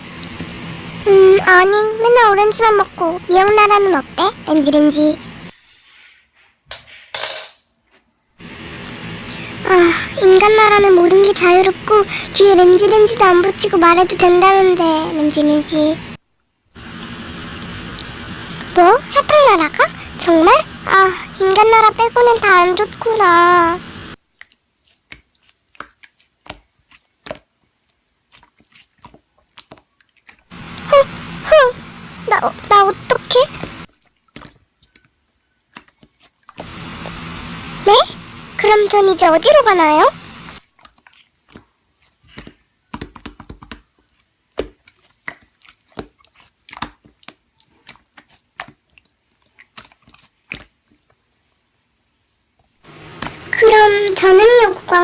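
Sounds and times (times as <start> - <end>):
slime squishing and clicking: 28.3 - 30.4, 42.3 - 51.1.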